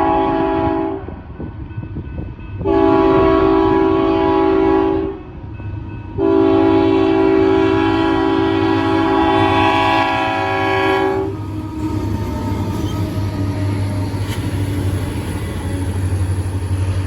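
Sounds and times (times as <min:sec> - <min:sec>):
locomotive air horn blasts: 0:00.0 - 0:01.2, 0:02.6 - 0:05.2, 0:06.2 - 0:11.4
low rumble of moving train: 0:00.0 - 0:17.0.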